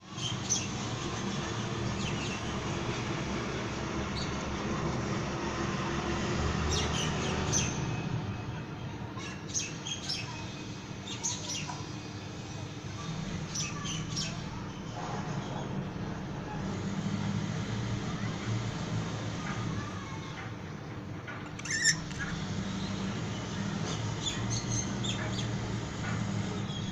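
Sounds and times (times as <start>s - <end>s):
budgerigars chirping: 21.6s - 22.4s.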